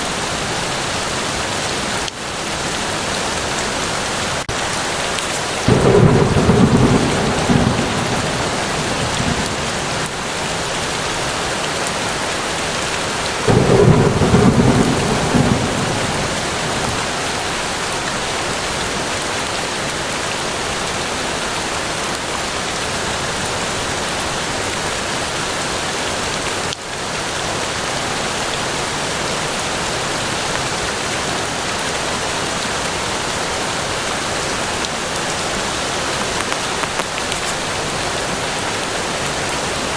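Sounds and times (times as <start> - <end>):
steady rain falling: 0.0 - 39.9
thunder rolling: 5.7 - 11.2, 13.5 - 17.9.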